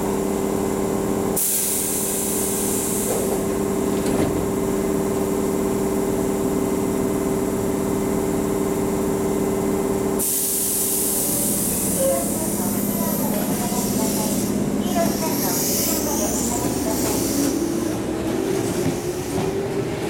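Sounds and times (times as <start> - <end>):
train electrical hum: 0.0 - 20.0
pneumatic doors hissing: 10.2 - 18.0.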